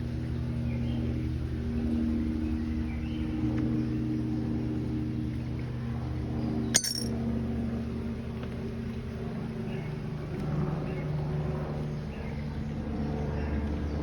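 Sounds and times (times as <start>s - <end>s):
sharp metallic clink: 6.8s - 7.1s.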